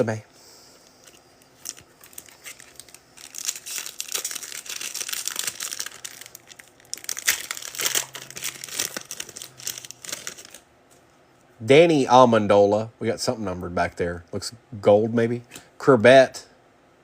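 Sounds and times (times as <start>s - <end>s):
foil wrapper crinkling and tearing: 1.1s - 10.6s.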